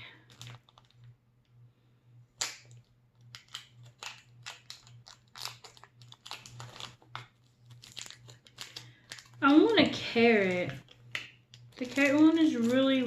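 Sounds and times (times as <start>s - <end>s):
plastic packaging crinkling: 0.0s - 1.2s, 2.4s - 13.0s
plastic packaging snap: 2.4s - 9.4s, 10.5s - 12.8s.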